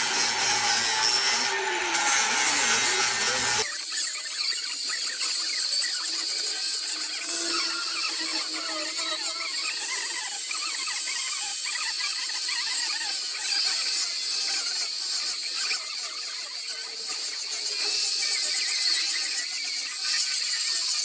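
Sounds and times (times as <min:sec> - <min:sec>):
rotary carving tool whining: 0:00.0 - 0:12.4.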